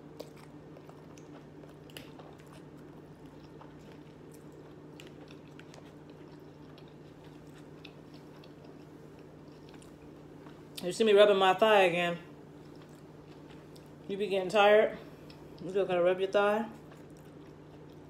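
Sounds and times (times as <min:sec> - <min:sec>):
person chewing: 0:00.0 - 0:10.8, 0:12.4 - 0:14.1, 0:16.8 - 0:18.0
faint steady hum: 0:00.0 - 0:18.0.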